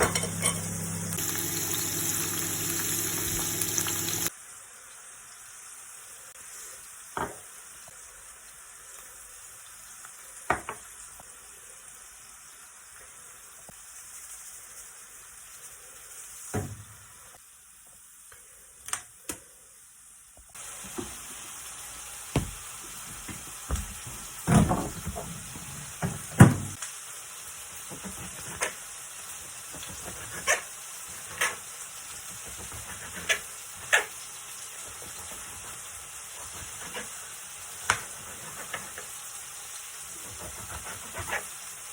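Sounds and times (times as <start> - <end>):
hot oil sizzling: 0.0 - 41.9
utensil scraping a pan: 32.4 - 34.1, 40.2 - 41.6.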